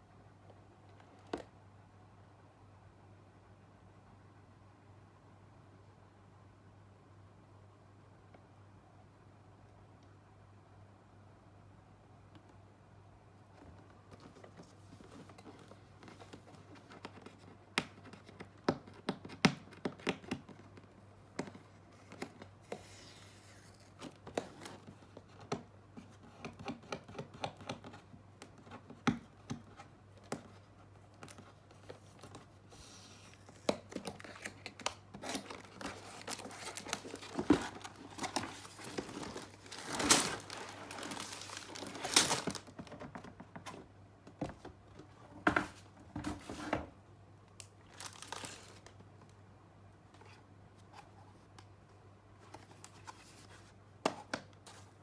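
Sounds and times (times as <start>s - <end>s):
plastic crinkling and tearing: 33.4s - 42.9s, 47.8s - 49.0s.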